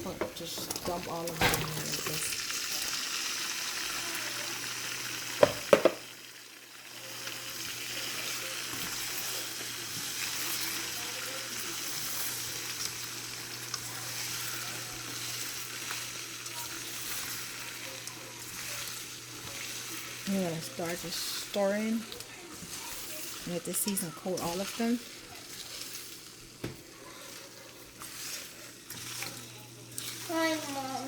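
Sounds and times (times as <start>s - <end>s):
shrimp sizzling in butter: 0.0s - 31.0s
knocks against a pot: 5.4s - 6.1s.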